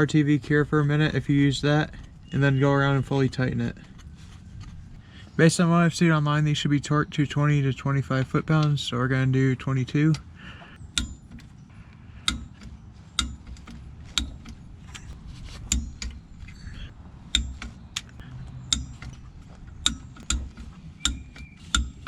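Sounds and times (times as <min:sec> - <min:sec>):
wrench clicking on bolts: 0:10.9 - 0:11.6, 0:12.2 - 0:22.0.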